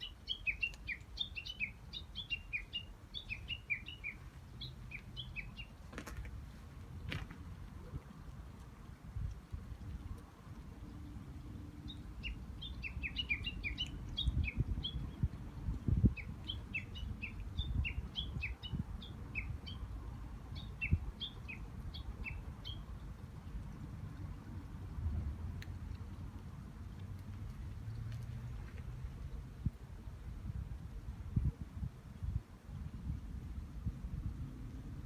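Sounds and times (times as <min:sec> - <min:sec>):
small birds chirping: 0:00.0 - 0:05.9, 0:09.2 - 0:25.0.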